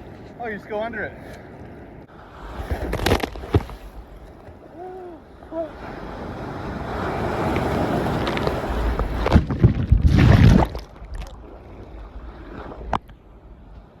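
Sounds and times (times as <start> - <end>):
ocean wave rushing surf: 4.7 - 9.4.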